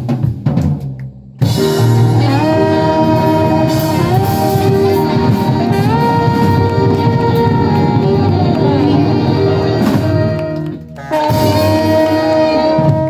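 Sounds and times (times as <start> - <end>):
live band with horns: 0.0 - 13.0.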